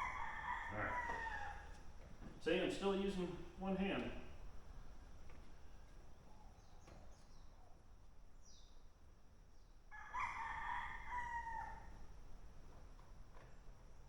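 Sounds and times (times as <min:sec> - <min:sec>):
rooster crowing: 0:00.0 - 0:01.8, 0:09.9 - 0:12.1.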